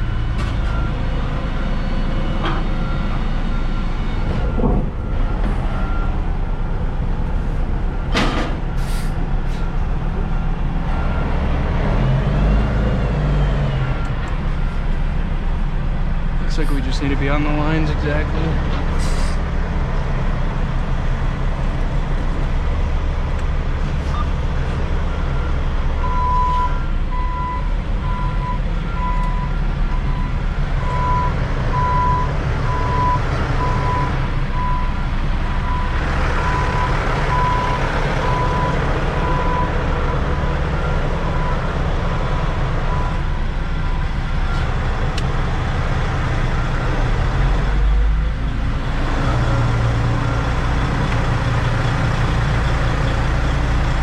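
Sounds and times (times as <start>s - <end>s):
diesel truck engine running: 0.0s - 54.0s
reversing alarm beeping: 25.1s - 39.8s.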